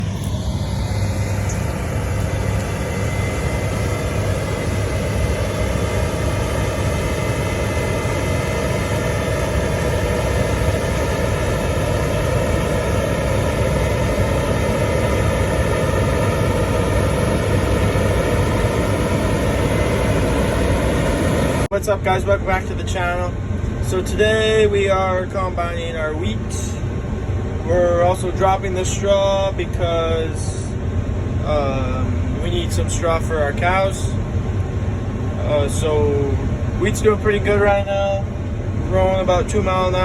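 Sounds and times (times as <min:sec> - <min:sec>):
combine harvester running: 0:00.0 - 0:40.0.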